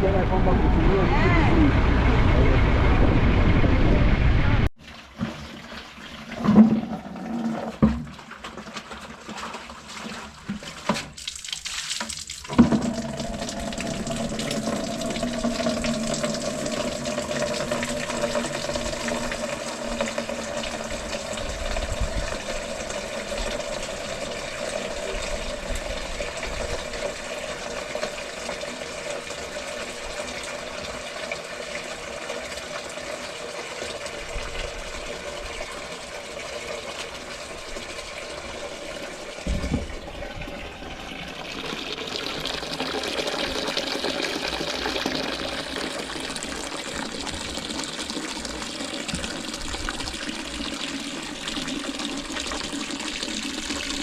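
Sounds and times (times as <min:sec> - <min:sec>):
water gushing: 0:00.0 - 0:54.0.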